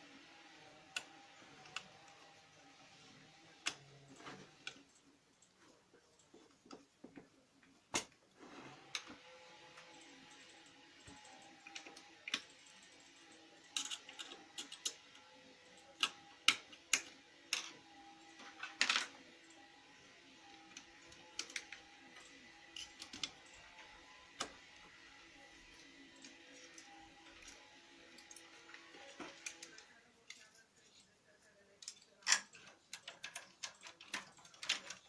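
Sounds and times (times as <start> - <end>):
laser printer humming: 0.0 - 5.2, 8.4 - 30.2.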